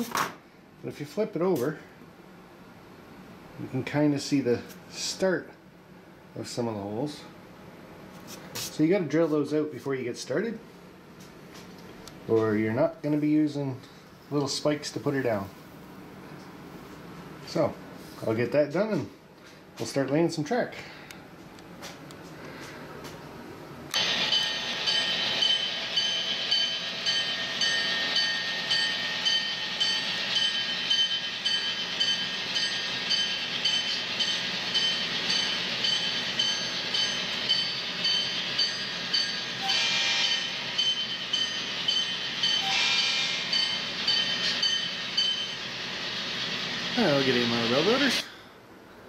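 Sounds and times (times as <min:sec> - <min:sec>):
steady high whine: 0:22.9 - 0:48.4.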